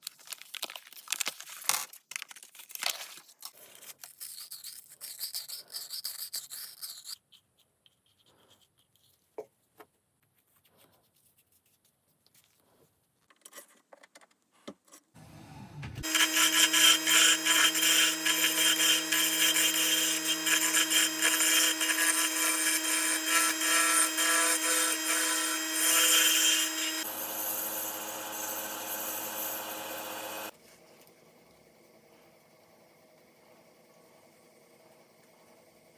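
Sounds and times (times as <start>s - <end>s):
electric power tool humming: 15.2s - 30.5s
power tool cutting wood: 15.2s - 30.5s.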